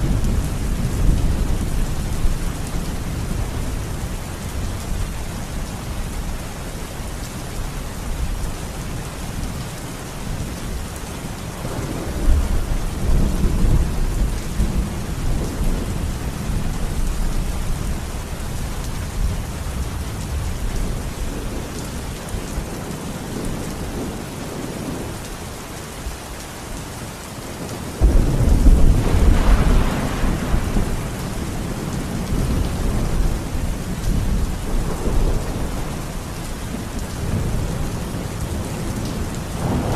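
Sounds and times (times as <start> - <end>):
steady rain falling: 0.0 - 39.9
loud thunderclap: 28.0 - 33.4, 39.6 - 39.9
rolling thunder: 28.0 - 39.9.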